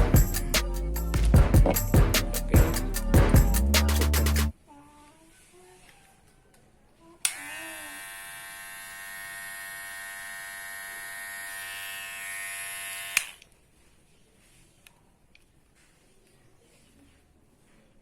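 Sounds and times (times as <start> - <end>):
hair clipper switch click: 7.2 - 7.6, 12.9 - 13.5
hair clipper buzzing: 7.3 - 13.4.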